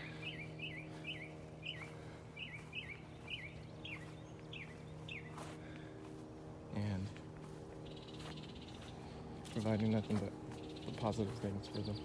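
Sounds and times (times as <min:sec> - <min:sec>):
songbird whistling notes: 0:00.0 - 0:05.4.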